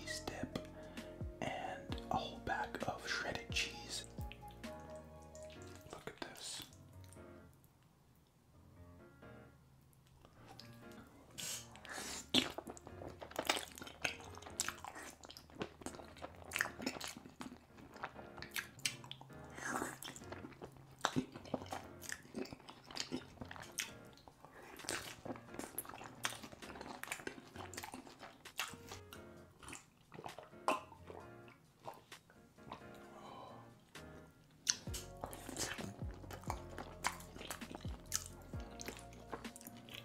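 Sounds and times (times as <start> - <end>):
background music: 0.0 - 7.7, 8.6 - 40.0
person chewing and biting food: 11.4 - 40.0.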